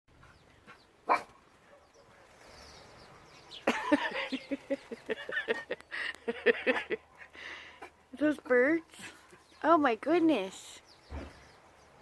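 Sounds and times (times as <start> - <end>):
dog barking: 1.0 - 2.4.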